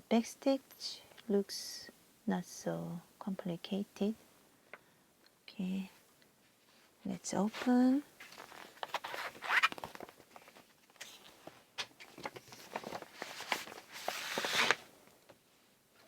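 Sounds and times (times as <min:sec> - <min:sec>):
plastic packaging crackling: 0:07.6 - 0:11.4, 0:12.0 - 0:14.9
scratchy plastic stretching: 0:08.2 - 0:10.2.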